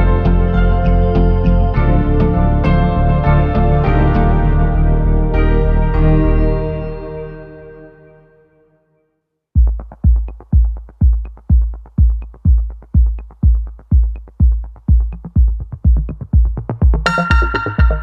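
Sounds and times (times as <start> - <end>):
electronic music: 0.0 - 8.5, 9.6 - 18.0
synth chords: 0.0 - 8.8, 16.6 - 18.0
kick drum beat: 9.6 - 18.0.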